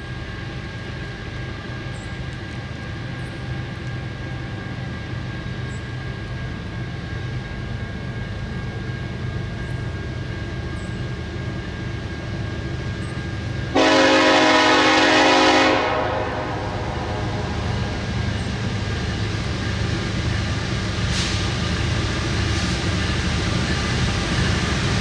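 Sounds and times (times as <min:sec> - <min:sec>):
train rumbling: 0:00.0 - 0:25.0
locomotive air horn blast: 0:13.7 - 0:17.7.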